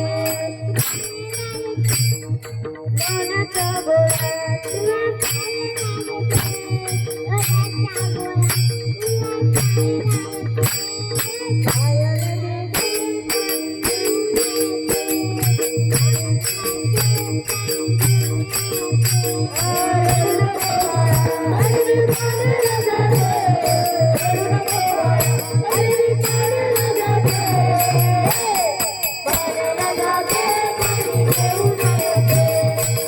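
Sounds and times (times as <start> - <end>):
boy singing: 0.0 - 33.0
jingling rhythm: 0.0 - 33.0.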